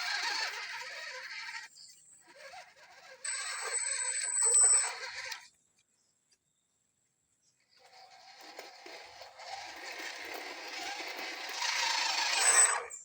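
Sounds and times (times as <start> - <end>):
electric motor and gears whining: 0.0 - 5.6, 7.8 - 13.0.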